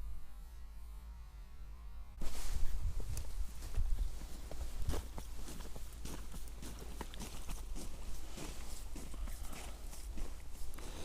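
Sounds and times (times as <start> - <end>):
wind rumble on microphone: 2.2 - 5.2.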